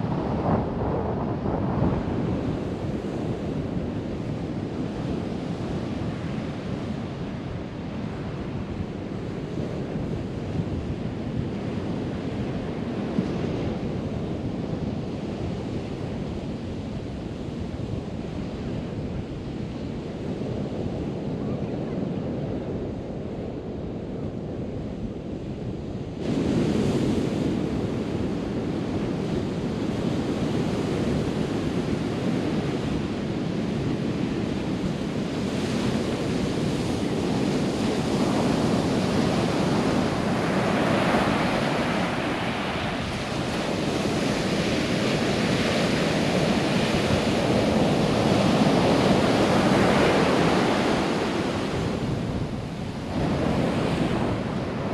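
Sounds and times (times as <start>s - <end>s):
wind buffeting microphone: 0.0s - 54.9s
surf washing onto beach: 26.2s - 54.9s.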